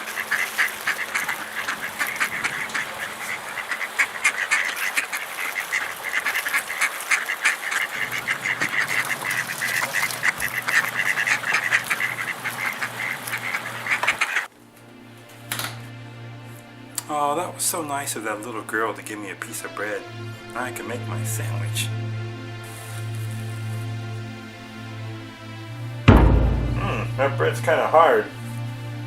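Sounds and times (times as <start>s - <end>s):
flock of ducks quacking: 0.0s - 14.5s, 17.8s - 29.0s.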